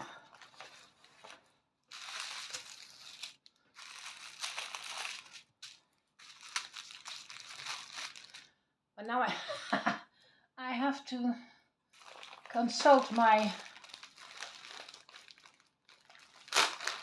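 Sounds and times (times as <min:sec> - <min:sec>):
plastic packaging crinkling: 0:00.4 - 0:08.5, 0:12.0 - 0:17.0.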